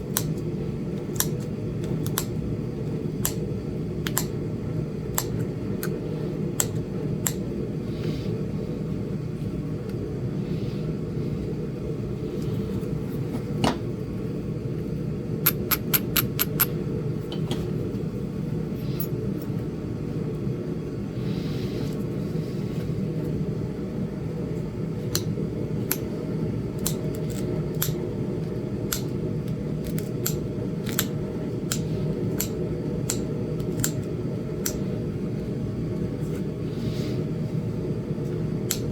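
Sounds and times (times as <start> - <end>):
steady low hum: 0.0 - 38.9
stone knapping clicks: 1.1 - 2.4, 4.0 - 4.4, 5.1 - 6.0, 15.4 - 16.7, 26.8 - 28.0, 28.9 - 34.8, 38.7 - 38.9.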